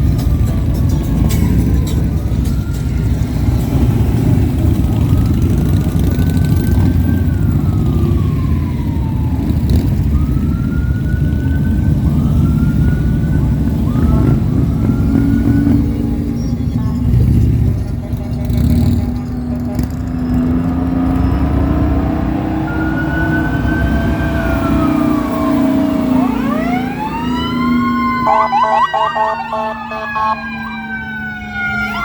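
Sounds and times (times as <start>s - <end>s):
siren: 0.0s - 17.1s, 18.2s - 32.0s
motorcycle and vehicle engines rumbling: 0.0s - 32.0s.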